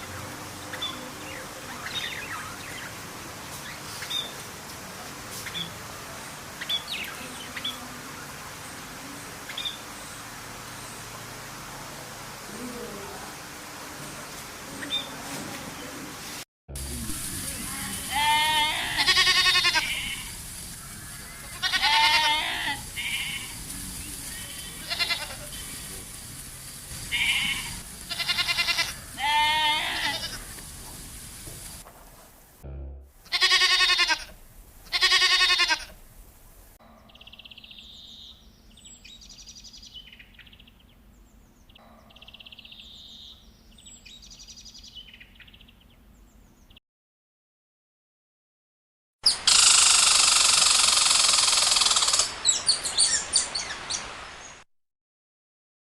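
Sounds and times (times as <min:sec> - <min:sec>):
goats bleating: 0:17.8 - 0:20.3, 0:21.4 - 0:23.6, 0:24.6 - 0:25.6, 0:27.1 - 0:30.4, 0:33.3 - 0:34.3, 0:34.9 - 0:36.0.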